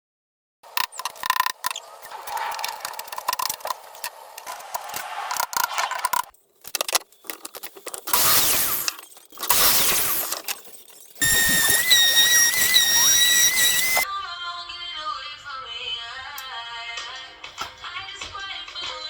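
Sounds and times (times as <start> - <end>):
hard objects clicking and clinking: 0.8 - 14.0
scraping noise: 1.4 - 6.3.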